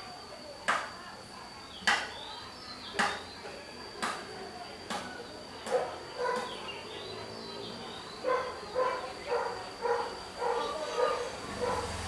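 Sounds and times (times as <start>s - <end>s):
faint bird chirps: 1.6s - 3.7s
dog barking: 5.7s - 6.5s, 8.2s - 12.0s.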